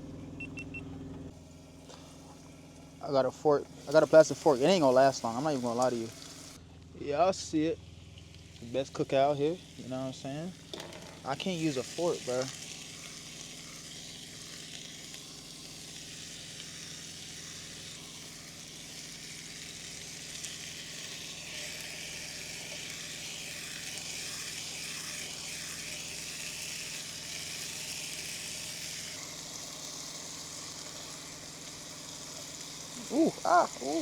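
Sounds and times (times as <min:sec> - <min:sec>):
bacon sizzling in a pan: 0:03.7 - 0:06.6, 0:07.8 - 0:34.0.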